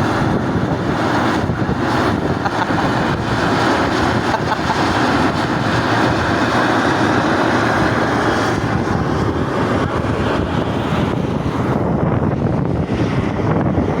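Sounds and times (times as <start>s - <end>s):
steam venting with rushing hiss: 0.0s - 13.2s.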